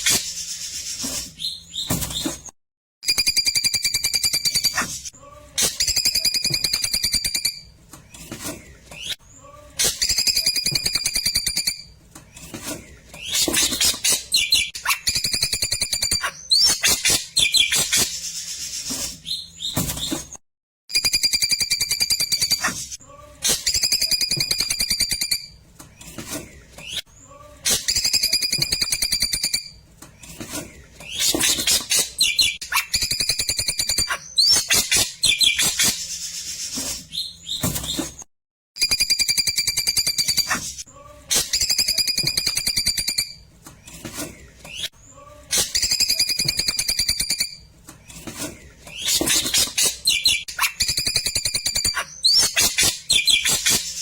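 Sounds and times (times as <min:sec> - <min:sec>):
songbird trills and whistles: 0:48.9 - 0:53.8.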